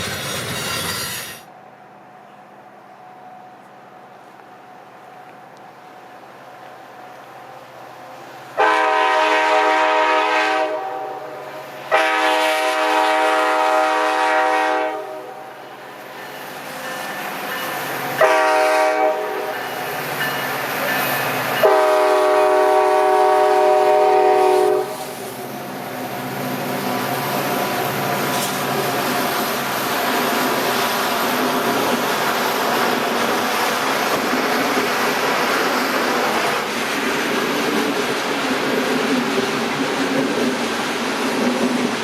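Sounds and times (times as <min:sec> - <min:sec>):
train rumbling past: 0:00.0 - 0:42.0
locomotive air horn blasts: 0:08.6 - 0:15.4, 0:18.2 - 0:19.5, 0:21.6 - 0:25.1.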